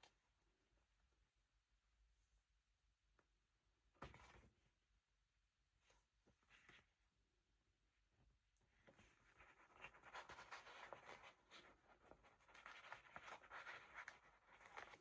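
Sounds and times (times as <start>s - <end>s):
paper scratching and rustling: 9.0s - 15.0s.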